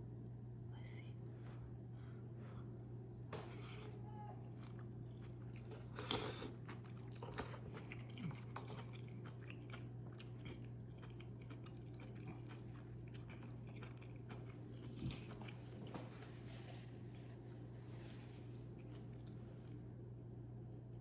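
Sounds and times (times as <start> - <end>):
steady low hum: 0.0 - 21.0
chewing and biting: 4.5 - 16.2.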